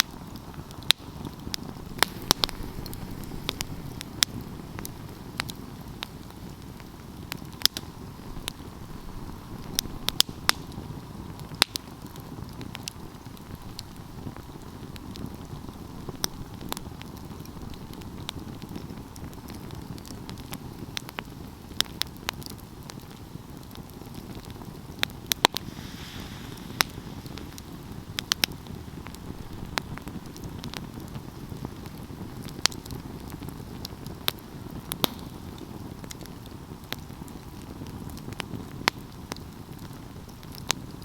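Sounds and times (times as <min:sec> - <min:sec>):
wood fire crackling: 0:00.0 - 0:41.0.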